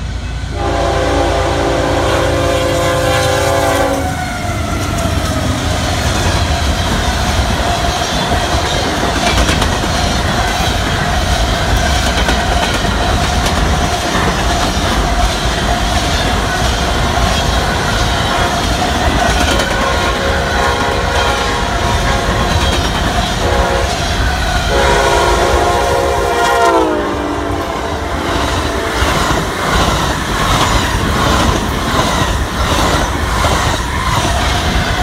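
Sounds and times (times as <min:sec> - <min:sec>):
train wheels rumbling on rail: 0:00.0 - 0:35.0
locomotive air horn: 0:00.5 - 0:05.3, 0:19.7 - 0:22.6, 0:23.4 - 0:29.3.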